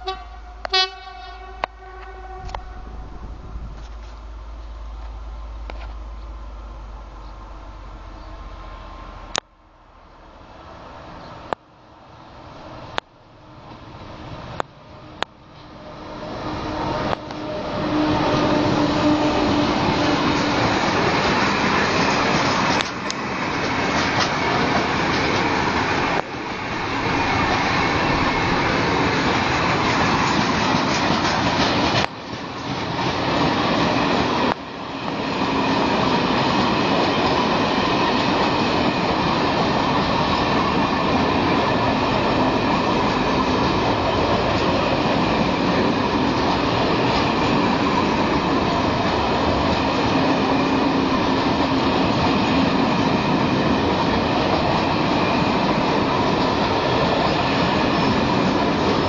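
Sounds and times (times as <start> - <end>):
train wheels clattering over rail joints: 16.9 - 59.0.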